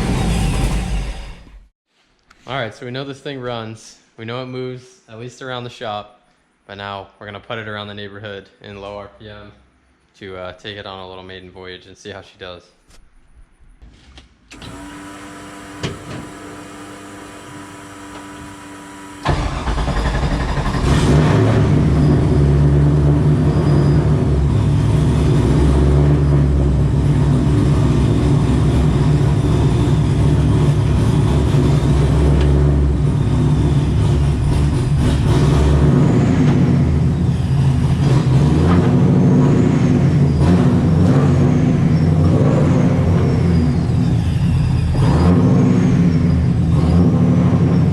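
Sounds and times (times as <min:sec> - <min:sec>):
racecar engine running: 0:00.0 - 0:01.6, 0:14.6 - 0:47.9
supercharger whine: 0:00.0 - 0:01.7, 0:14.5 - 0:47.9.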